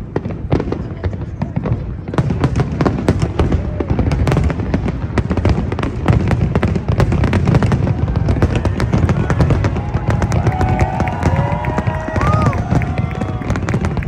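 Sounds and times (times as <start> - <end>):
firework bangs and cracks: 0.0 - 14.0.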